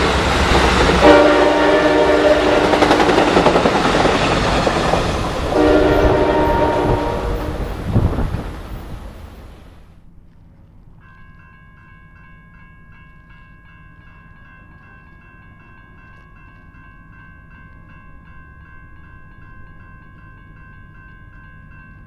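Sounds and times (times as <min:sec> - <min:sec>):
railroad crossing bell ringing: 0:00.0 - 0:09.0, 0:11.0 - 0:22.0
freight train rumble: 0:00.0 - 0:11.0.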